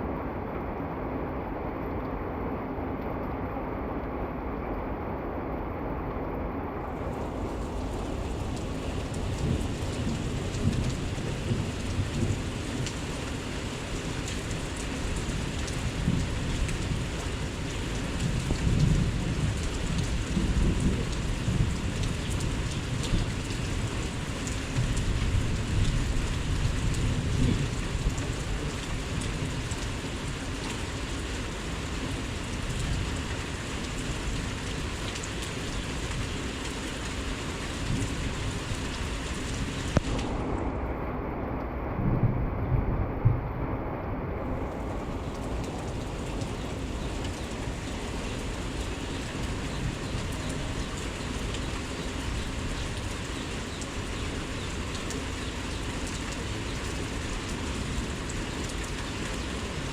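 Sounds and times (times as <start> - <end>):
heavy rain pouring: 0.0 - 59.9
low rumbles: 4.7 - 13.2, 39.4 - 50.8.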